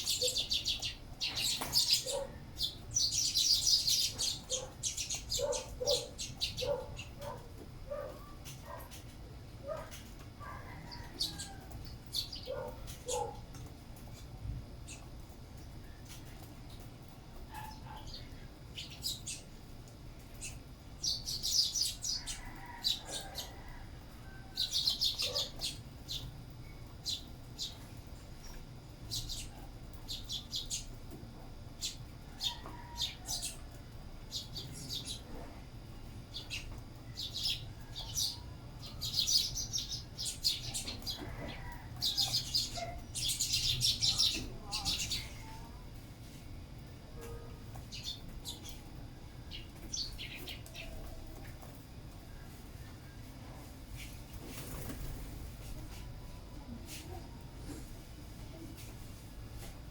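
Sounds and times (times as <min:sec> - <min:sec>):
sparrows chirping: 0:00.0 - 0:15.2, 0:17.4 - 0:19.6, 0:20.2 - 0:23.5, 0:24.5 - 0:31.0, 0:31.8 - 0:33.7, 0:34.3 - 0:35.3, 0:36.0 - 0:45.7, 0:47.7 - 0:51.4.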